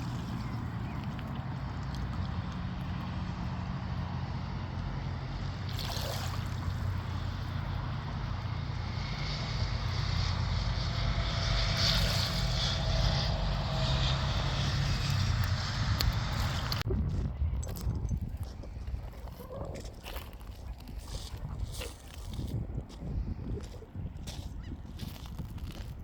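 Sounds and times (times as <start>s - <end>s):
sea water washing: 0.0s - 16.8s
motor droning: 0.0s - 16.9s.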